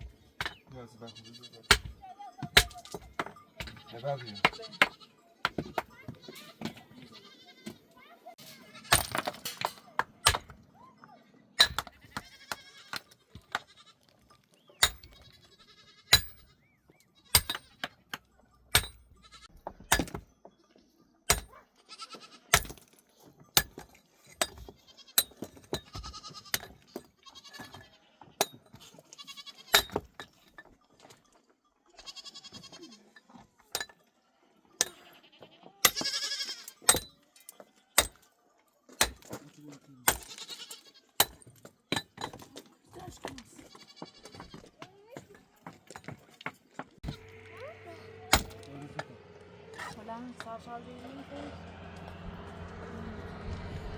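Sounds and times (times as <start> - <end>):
farm animals bleating: 0.7 - 1.7, 3.4 - 5.3, 6.0 - 9.0, 11.0 - 17.4, 19.2 - 19.6, 20.5 - 22.6, 24.8 - 25.2, 25.8 - 29.8, 31.8 - 33.2, 34.2 - 38.0, 40.1 - 41.2, 43.0 - 44.8, 47.1 - 52.0.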